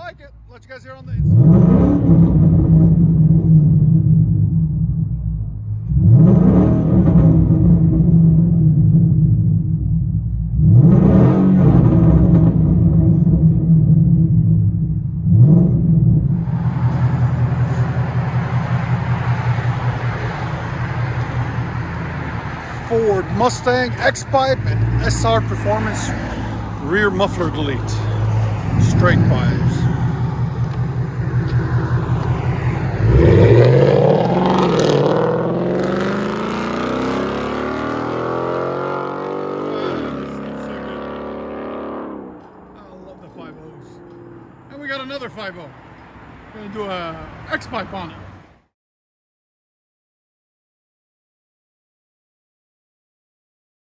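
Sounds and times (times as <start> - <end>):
engine revving: 0.9 - 45.1.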